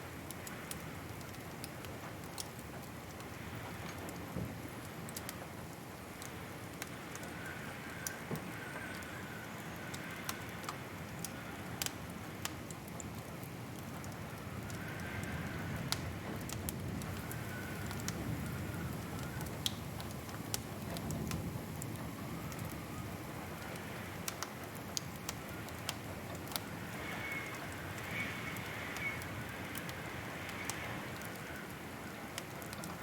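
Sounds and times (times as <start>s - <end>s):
fire burning low rush: 0.0s - 33.0s
fire crackling and popping: 0.0s - 33.0s
faint wavering whistle: 26.9s - 29.3s.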